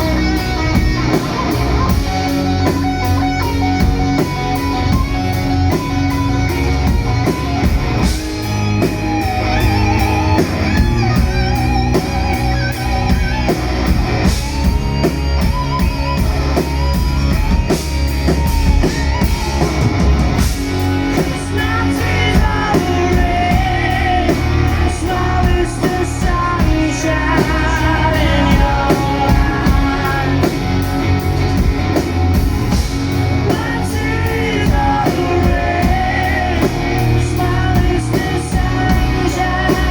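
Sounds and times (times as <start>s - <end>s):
drum kit: 0.0s - 39.9s
electric guitar: 0.0s - 39.9s
heavy bass: 0.0s - 39.9s
person singing: 20.8s - 31.2s, 33.4s - 39.9s.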